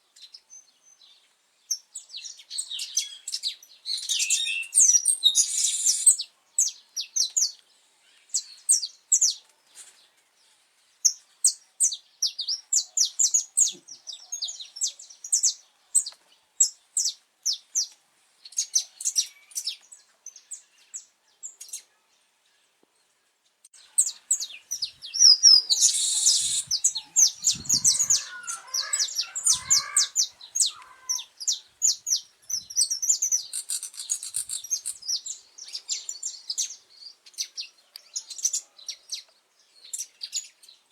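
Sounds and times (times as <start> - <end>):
finch singing high chirps: 1.7 - 7.5, 23.8 - 40.6.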